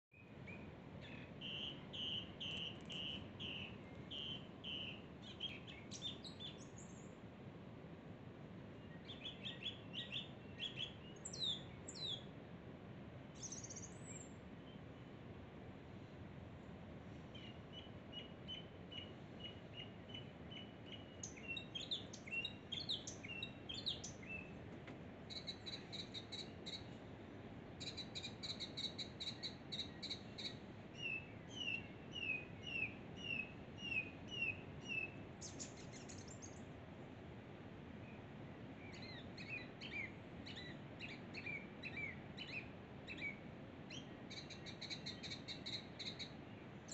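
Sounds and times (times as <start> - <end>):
birds singing and chirping: 1.0 - 7.1, 9.0 - 12.2, 18.2 - 24.5.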